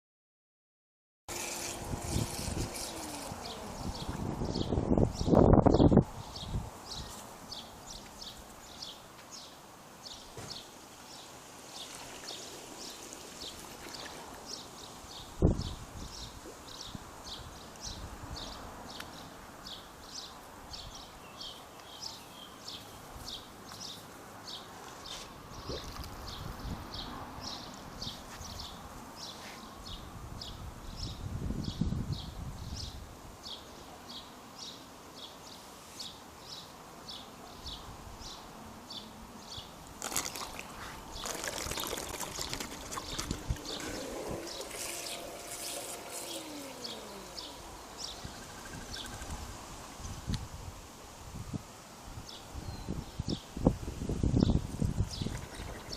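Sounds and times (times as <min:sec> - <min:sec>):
water splashing and trickling: 0:11.3 - 0:15.4, 0:25.5 - 0:26.4, 0:39.9 - 0:50.0, 0:54.8 - 0:55.9
small bird chirping: 0:41.2 - 0:50.2.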